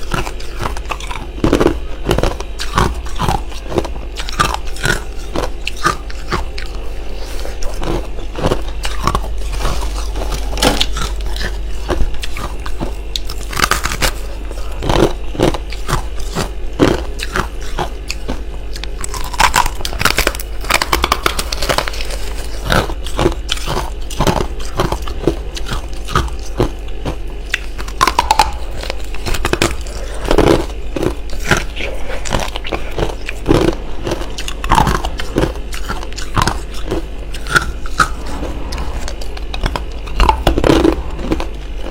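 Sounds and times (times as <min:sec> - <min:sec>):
chewing crunchy frost: 0:00.0 - 0:41.9
steady low hum: 0:00.0 - 0:41.9.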